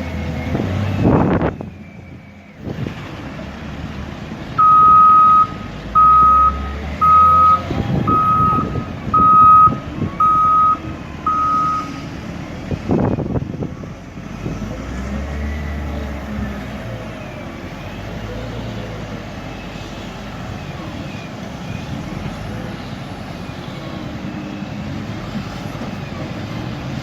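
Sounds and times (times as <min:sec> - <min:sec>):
diesel engine running: 0:00.0 - 0:27.0
reversing alarm beeping: 0:04.6 - 0:12.0.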